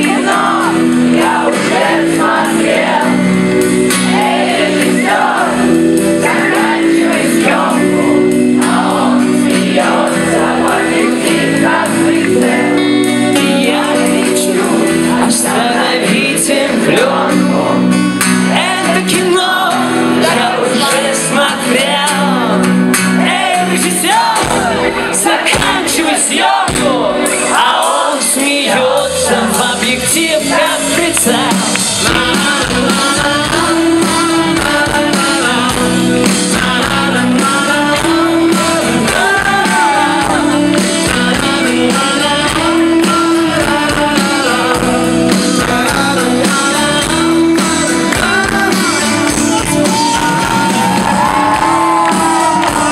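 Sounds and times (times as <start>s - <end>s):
acoustic rock band playing: 0.0s - 52.9s
person singing lead vocal: 0.0s - 52.9s.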